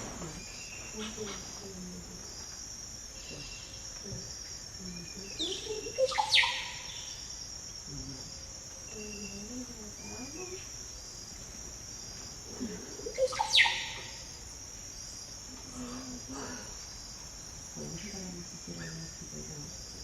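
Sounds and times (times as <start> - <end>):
bird calls: 5.3 - 7.2, 12.7 - 14.3.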